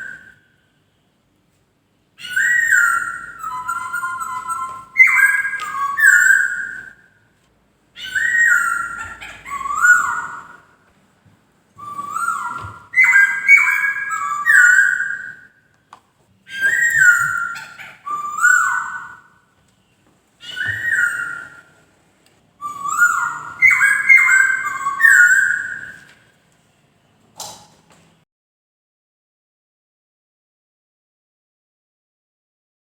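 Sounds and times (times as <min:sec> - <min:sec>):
laughingthrush singing whistled notes: 0:00.0 - 0:00.6, 0:02.2 - 0:07.1, 0:08.0 - 0:10.8, 0:11.8 - 0:15.6, 0:16.5 - 0:19.4, 0:20.4 - 0:21.8, 0:22.6 - 0:26.2.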